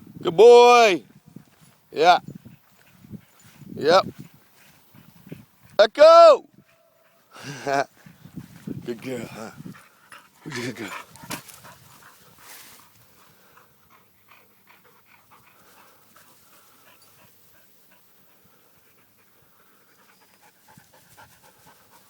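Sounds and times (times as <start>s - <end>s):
dog panting: 2.4s - 5.6s, 8.0s - 22.0s.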